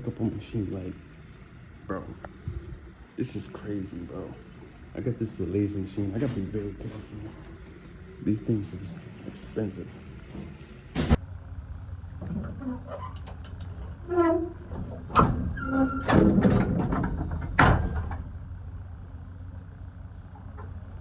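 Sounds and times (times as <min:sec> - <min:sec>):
clunks and rattles: 0:00.0 - 0:11.2, 0:12.1 - 0:18.6
steady low hum: 0:00.0 - 0:12.7
short squeaks: 0:12.4 - 0:16.2.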